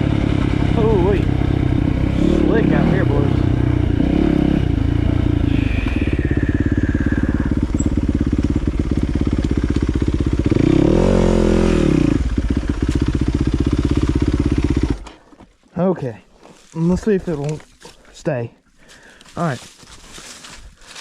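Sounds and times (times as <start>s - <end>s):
dirt bike engine idling: 0.0s - 15.4s.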